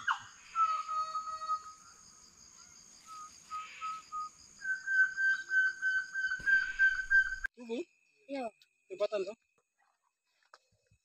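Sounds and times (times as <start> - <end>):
birds whistling: 0.0 - 2.0, 2.6 - 7.5.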